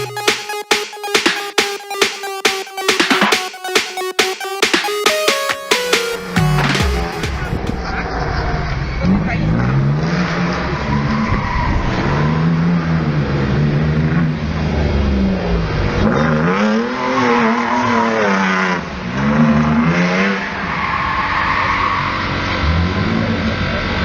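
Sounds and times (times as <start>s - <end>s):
car engine revving: 6.4s - 24.0s
tyres squealing and skidding: 7.7s - 13.0s, 16.5s - 18.8s, 19.5s - 24.0s.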